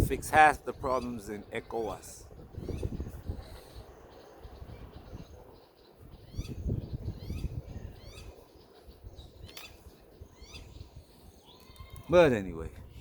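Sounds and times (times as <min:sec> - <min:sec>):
birds chirping: 0:00.0 - 0:13.0
low rumble on microphone: 0:02.2 - 0:08.1.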